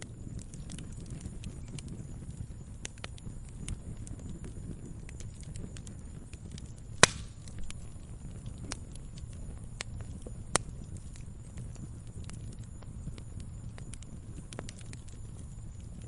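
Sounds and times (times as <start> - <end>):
campfire crackling: 0.0 - 16.0
loud pop of burning wood: 3.7 - 11.2.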